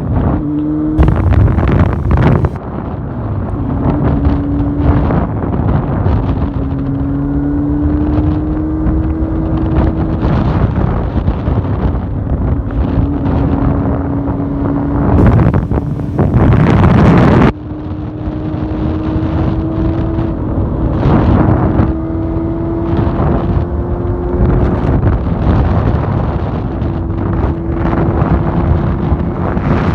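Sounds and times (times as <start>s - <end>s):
engine running at high revs: 0.4s - 2.6s, 13.6s - 17.5s
wind buffeting microphone: 1.0s - 7.1s, 8.0s - 17.6s, 18.2s - 29.9s.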